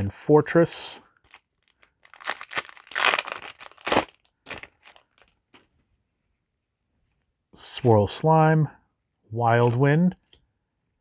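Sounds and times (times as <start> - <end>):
foil wrapper crinkling and tearing: 1.3 - 5.3.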